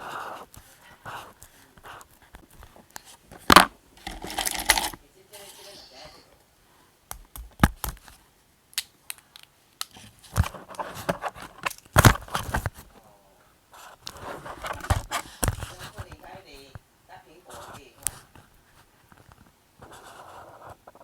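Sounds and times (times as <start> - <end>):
sharp clicks and taps: 7.1 - 8.2.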